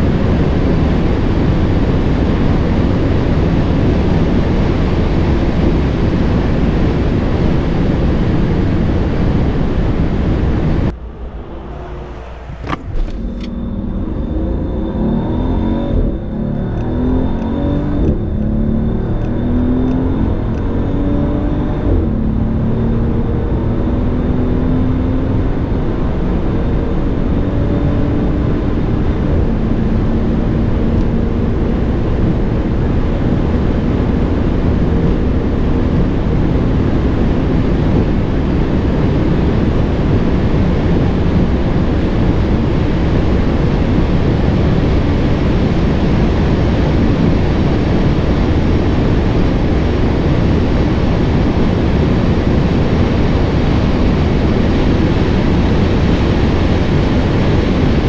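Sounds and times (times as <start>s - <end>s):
car engine accelerating: 0.0s - 58.0s
wind rushing: 8.5s - 21.6s.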